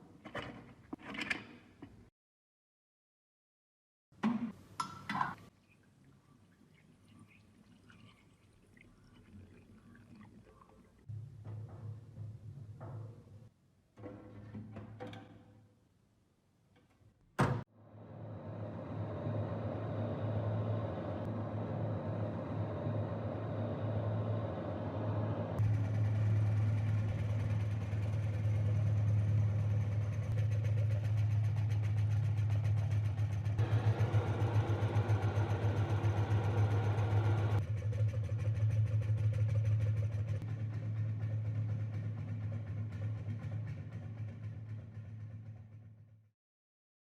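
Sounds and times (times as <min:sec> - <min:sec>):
fan engine humming: 0:17.8 - 0:30.4, 0:33.6 - 0:37.6.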